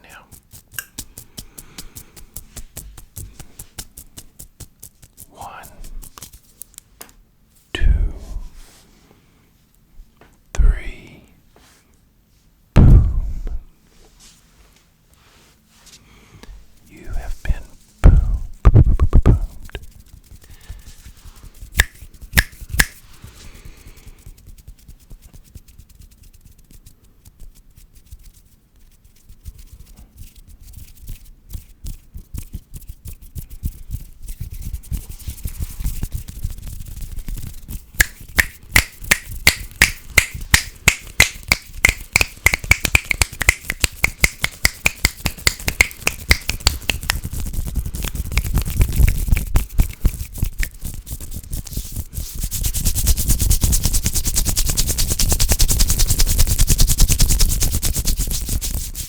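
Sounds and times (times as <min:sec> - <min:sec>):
hands rubbing on microphone: 0:00.0 - 0:06.9, 0:16.6 - 0:59.0.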